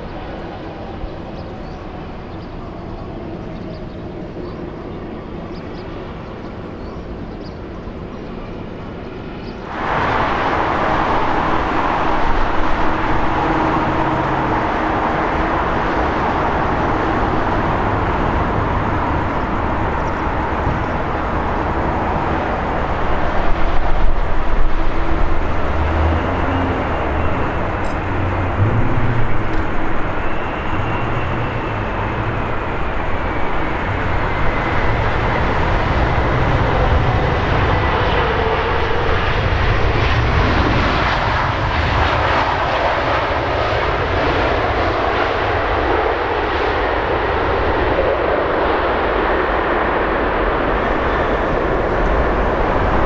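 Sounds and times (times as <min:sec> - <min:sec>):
jet engine noise: 0:00.0 - 0:53.0
deep rumble: 0:09.8 - 0:37.2.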